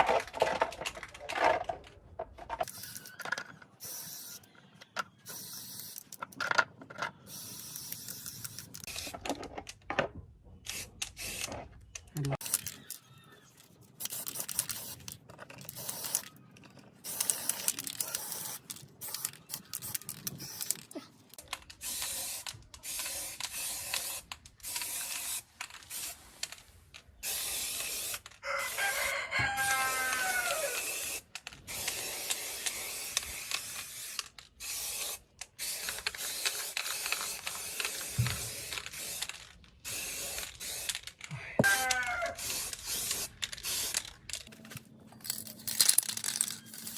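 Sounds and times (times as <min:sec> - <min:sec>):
rooster crowing: 0:28.4 - 0:30.8, 0:41.6 - 0:42.4.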